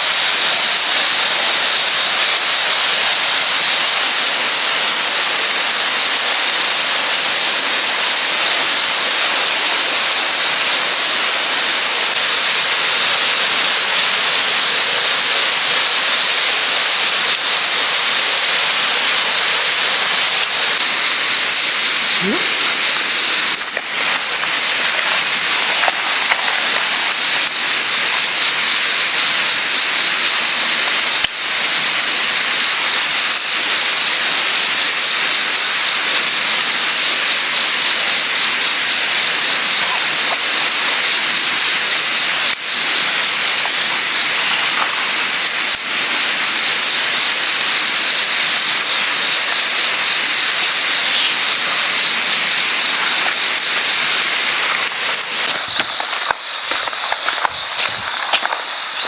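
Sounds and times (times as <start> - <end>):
insects droning: 0.0 - 59.0
river rushing: 15.5 - 33.4.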